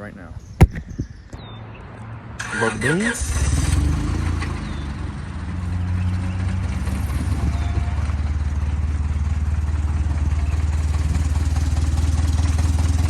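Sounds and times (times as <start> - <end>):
car engine idling: 2.4 - 13.0.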